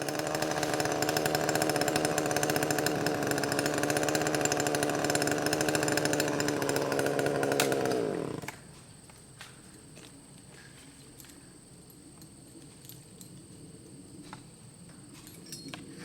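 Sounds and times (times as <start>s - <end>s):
chainsaw engine running: 0.0s - 8.6s.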